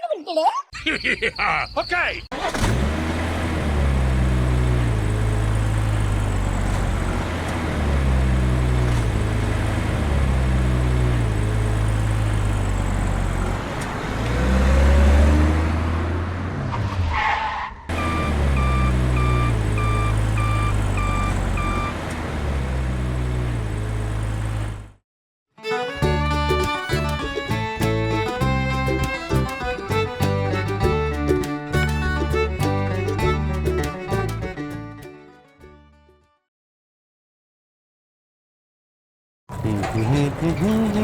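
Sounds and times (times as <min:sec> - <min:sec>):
vehicle engine running: 0:02.6 - 0:16.3, 0:17.9 - 0:25.0, 0:26.0 - 0:35.0, 0:39.5 - 0:41.0
high beeping: 0:17.9 - 0:21.9.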